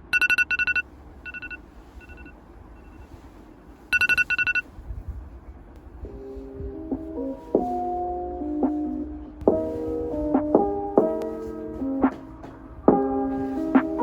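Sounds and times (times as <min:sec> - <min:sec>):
electronic alarm beeping: 0:00.0 - 0:03.1, 0:03.9 - 0:04.6
soft piano music: 0:05.5 - 0:14.0.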